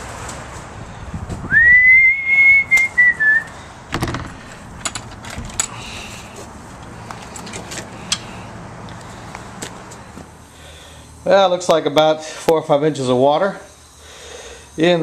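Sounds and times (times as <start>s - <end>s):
long high whistled note: 1.5s - 3.5s
knock: 3.9s - 4.4s.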